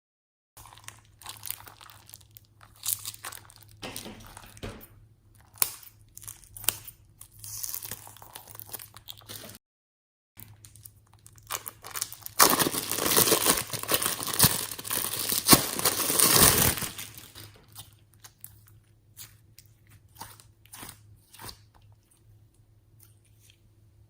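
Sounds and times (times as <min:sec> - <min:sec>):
packaging tearing and crumpling: 0:00.6 - 0:04.5, 0:05.4 - 0:09.6, 0:10.4 - 0:17.7.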